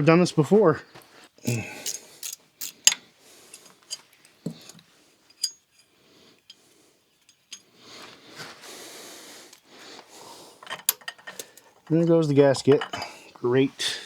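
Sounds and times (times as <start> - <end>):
metal tools clinking on engine: 1.6 - 6.6, 10.6 - 13.2.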